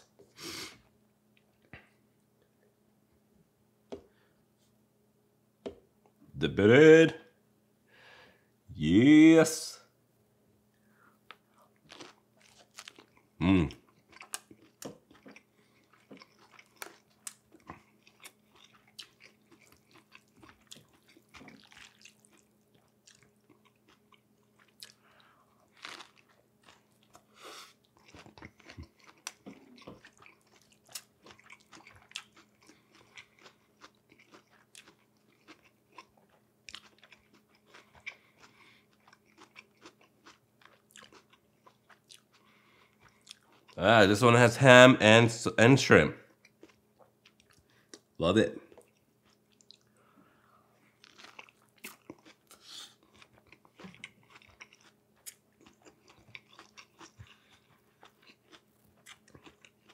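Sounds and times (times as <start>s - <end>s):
chewing crunchy food: 11.3s - 43.8s, 46.2s - 59.9s.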